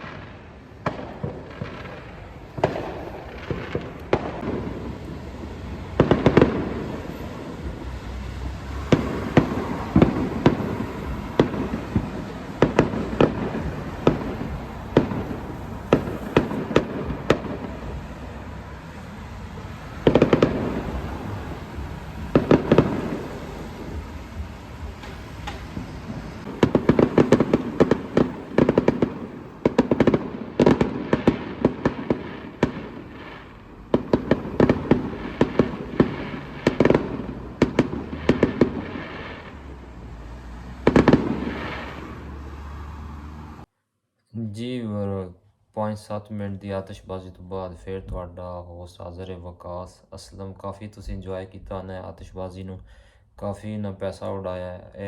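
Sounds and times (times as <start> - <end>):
fireworks bangs: 0.0 - 42.9.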